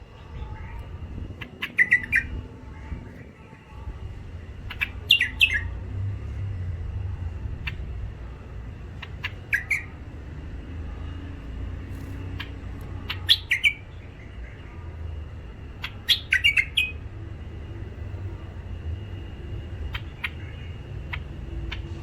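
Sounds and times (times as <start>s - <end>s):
low steady rumble: 0.0s - 22.0s
birds giving harsh chirps: 0.8s - 2.4s, 4.6s - 5.8s, 9.0s - 10.1s, 11.6s - 14.4s, 15.7s - 17.0s.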